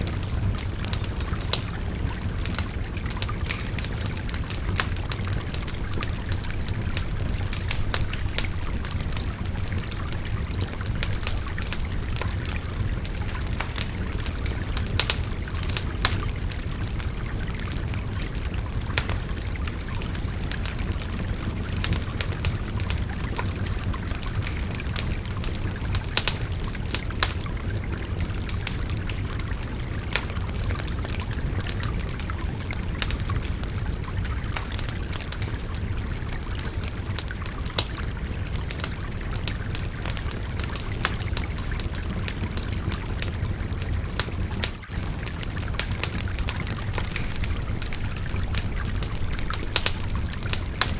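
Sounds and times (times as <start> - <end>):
wood fire crackling and popping: 0.0 - 50.9.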